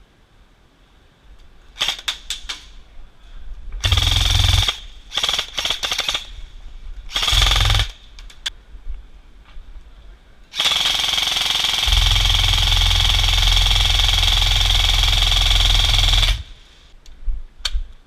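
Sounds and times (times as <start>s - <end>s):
airsoft gun full-auto burst: 3.8s - 6.3s, 7.1s - 8.0s, 10.6s - 16.6s
heavy low rumble: 11.8s - 16.6s.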